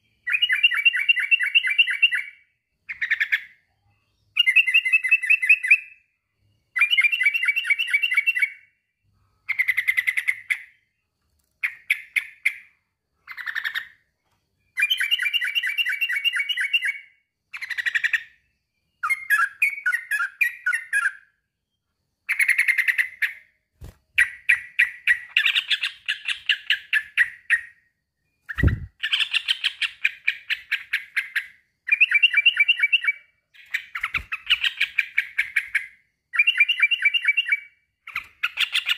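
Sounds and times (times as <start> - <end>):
bird singing chattering phrases: 11.6 - 14.1, 14.8 - 21.3, 22.3 - 23.5, 24.2 - 27.8, 28.4 - 38.9.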